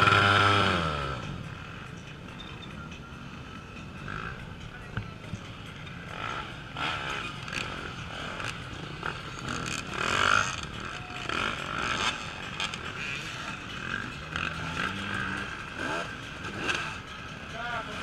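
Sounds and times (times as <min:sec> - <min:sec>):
engine revving: 0:00.0 - 0:01.9, 0:06.0 - 0:18.0
off-road motorcycles running: 0:00.0 - 0:18.0.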